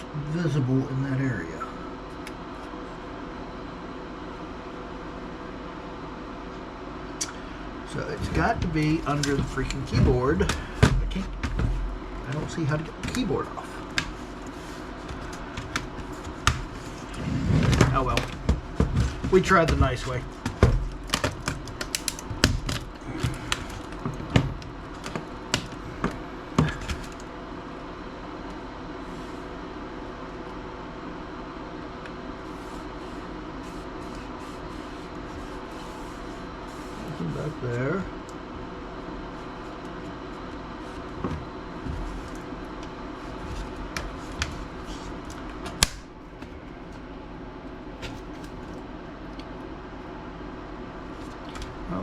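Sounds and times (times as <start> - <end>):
plastic case cracking and snapping: 17.7 - 27.3, 45.6 - 46.1.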